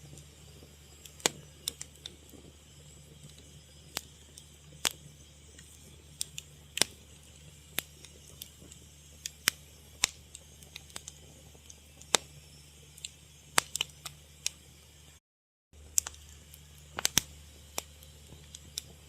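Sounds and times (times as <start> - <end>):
fire crackling: 0.0 - 15.2, 15.8 - 19.0
faint low hum: 15.8 - 19.0.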